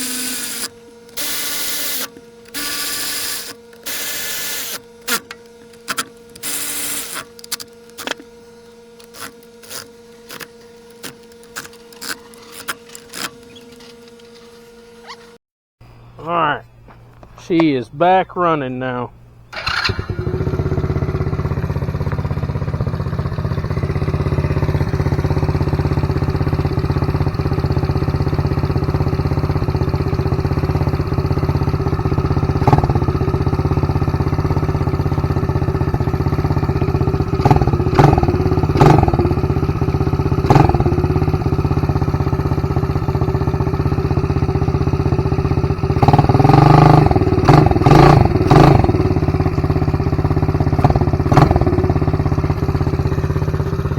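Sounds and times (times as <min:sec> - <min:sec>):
atv engine running: 0:00.0 - 0:05.7, 0:19.3 - 0:53.9.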